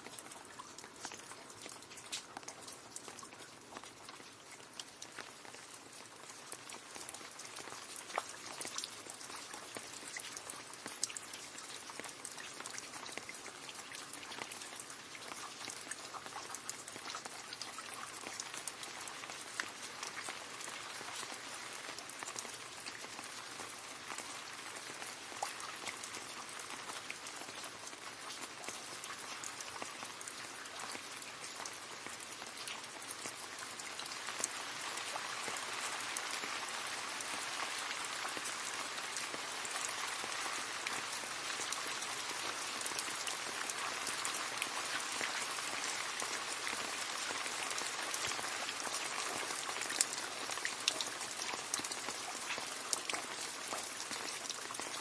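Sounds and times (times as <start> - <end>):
loud water drip: 0.0 - 55.0
rain splashing into puddle: 0.0 - 55.0.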